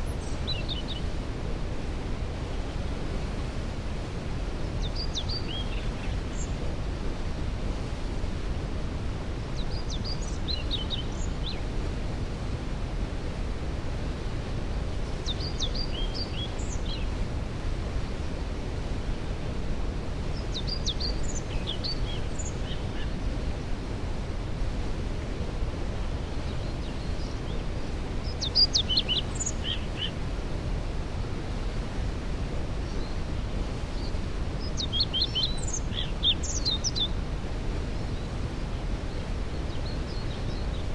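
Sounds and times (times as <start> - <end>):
songbird singing: 0.0 - 1.2, 4.7 - 6.6, 9.6 - 11.7, 15.1 - 17.2, 20.3 - 23.2, 26.2 - 30.2, 32.8 - 37.2, 37.9 - 40.9.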